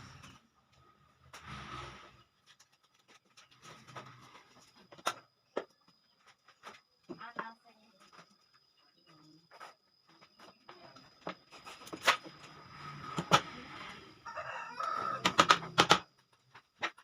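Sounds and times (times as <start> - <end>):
faint high whine: 3.8 - 15.8
chicken calling: 14.2 - 15.4
wood and tools knocking: 15.2 - 17.0.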